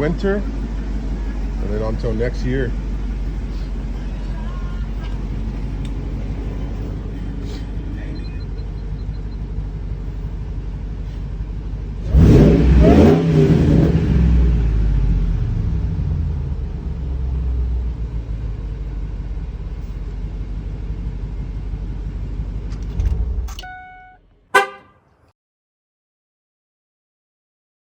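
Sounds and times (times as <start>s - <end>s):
truck engine revving: 0.0s - 23.7s
short horn toot: 23.6s - 25.0s.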